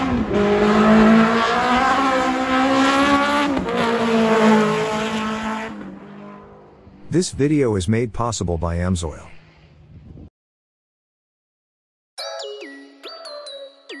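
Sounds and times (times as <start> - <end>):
race car engine at high revs: 0.0 - 7.1.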